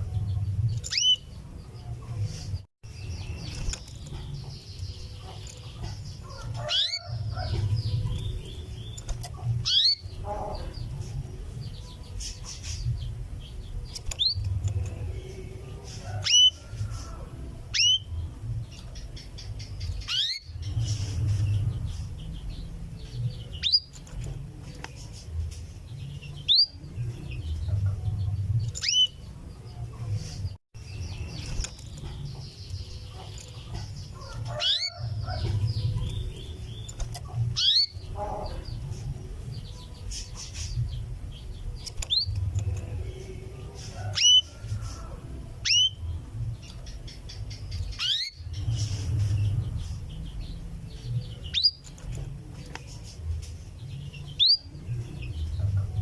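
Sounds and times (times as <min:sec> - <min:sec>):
canary call notes: 0:06.2 - 0:07.6, 0:17.7 - 0:18.2, 0:45.6 - 0:46.0.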